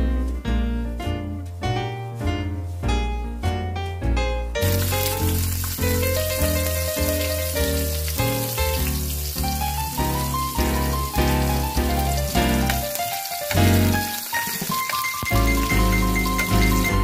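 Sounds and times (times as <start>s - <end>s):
background music with bass: 0.0s - 14.1s, 15.3s - 17.0s
hot oil sizzling in a pan: 4.6s - 17.0s.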